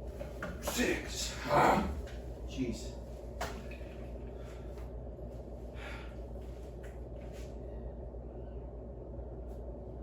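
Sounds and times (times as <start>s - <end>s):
low room hum: 0.0s - 10.0s
man breathing hard: 5.6s - 6.4s.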